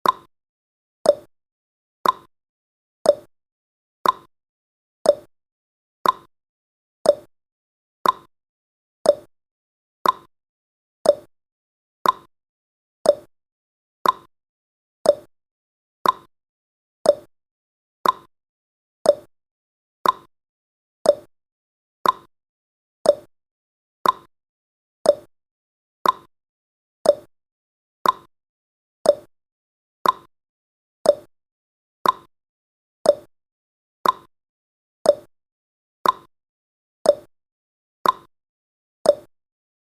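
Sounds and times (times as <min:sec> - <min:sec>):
clock ticking: 0:02.0 - 0:02.3, 0:04.0 - 0:04.3, 0:06.0 - 0:06.3, 0:08.0 - 0:08.3, 0:10.0 - 0:10.3, 0:12.0 - 0:12.3, 0:14.0 - 0:14.3, 0:15.1 - 0:15.3, 0:16.0 - 0:16.3, 0:18.0 - 0:18.3, 0:20.0 - 0:20.3, 0:22.0 - 0:22.3, 0:24.0 - 0:24.3, 0:25.1 - 0:25.3, 0:26.0 - 0:26.3, 0:27.1 - 0:27.3, 0:28.0 - 0:28.3, 0:29.1 - 0:29.3, 0:30.0 - 0:30.3, 0:32.0 - 0:32.3, 0:33.1 - 0:33.3, 0:34.0 - 0:34.3, 0:36.0 - 0:36.3, 0:38.0 - 0:38.3, 0:39.1 - 0:39.3.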